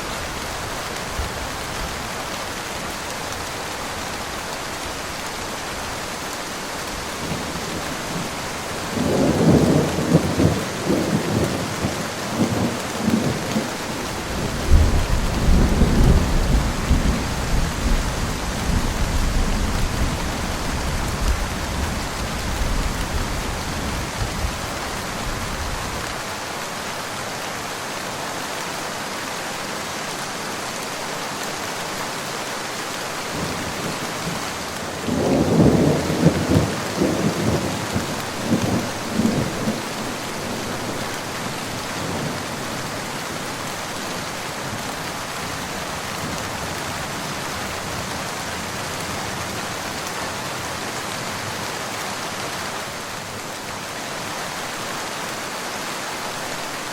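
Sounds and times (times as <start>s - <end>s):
steady rain falling: 0.0s - 56.9s
thunder rumbling: 7.2s - 24.6s, 33.4s - 42.9s.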